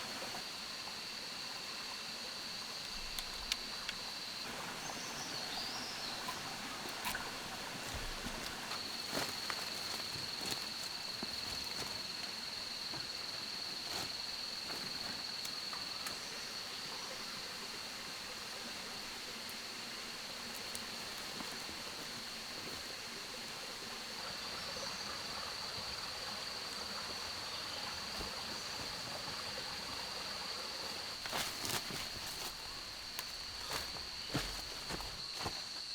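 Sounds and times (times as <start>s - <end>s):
hiss like running water: 0.0s - 35.9s.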